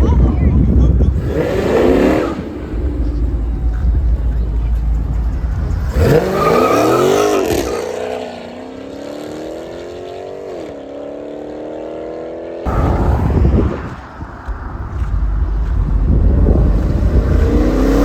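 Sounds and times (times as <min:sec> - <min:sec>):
loud rough rumble: 0:00.6 - 0:08.2, 0:12.7 - 0:18.0
car engine revving: 0:01.1 - 0:11.6, 0:12.7 - 0:18.0.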